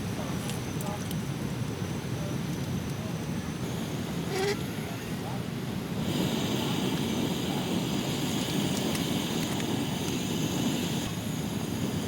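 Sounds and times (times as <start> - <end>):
faint hiss: 5.9 - 12.0.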